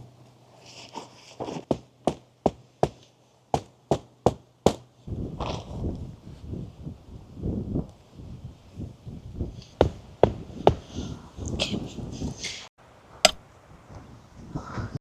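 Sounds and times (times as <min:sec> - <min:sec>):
sharp knocks: 0:01.7 - 0:04.8, 0:09.8 - 0:10.9
wind buffeting microphone: 0:05.0 - 0:15.0.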